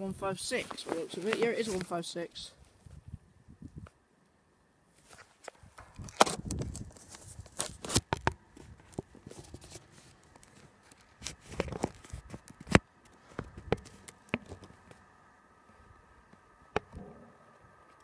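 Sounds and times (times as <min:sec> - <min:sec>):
phone handling noise: 0:05.4 - 0:15.0.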